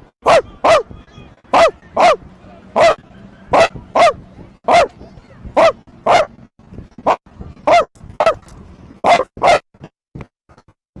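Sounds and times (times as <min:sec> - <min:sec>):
dog barking: 0:00.2 - 0:00.9, 0:01.5 - 0:02.2, 0:02.8 - 0:05.0, 0:05.6 - 0:06.4, 0:07.0 - 0:08.4, 0:09.0 - 0:09.6.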